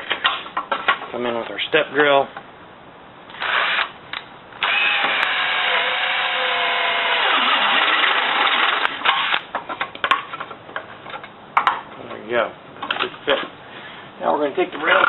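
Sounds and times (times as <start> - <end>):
power drill cutting sheet steel: 4.6 - 9.4.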